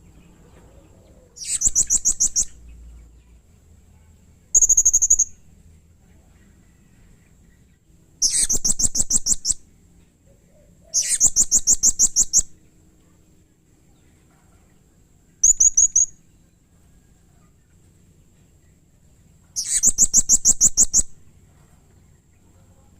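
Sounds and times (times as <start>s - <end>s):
parrot calling shrilly: 10.9s - 12.4s, 19.6s - 21.1s.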